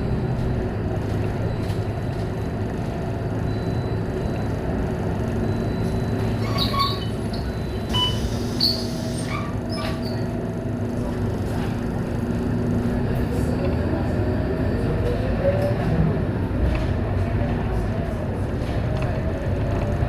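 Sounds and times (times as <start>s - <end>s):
bus engine drone: 0.0s - 20.0s
short high squeaks and clicks: 6.4s - 10.3s.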